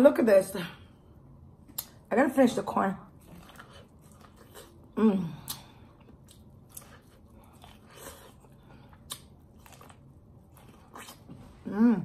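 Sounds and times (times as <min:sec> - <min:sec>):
chewing corn on the cob: 0:03.2 - 0:11.6.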